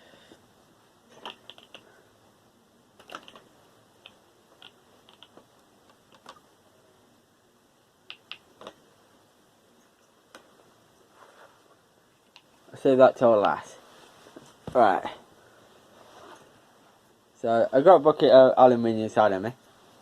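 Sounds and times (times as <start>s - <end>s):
small parts and tools clicking: 1.1s - 1.9s, 3.0s - 6.4s.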